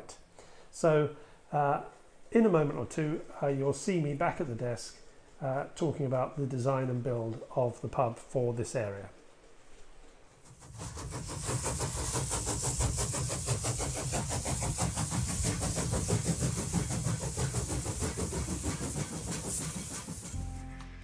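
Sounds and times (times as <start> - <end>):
steady hiss: 0.0 - 20.6
train rhythmic beat: 10.4 - 21.0.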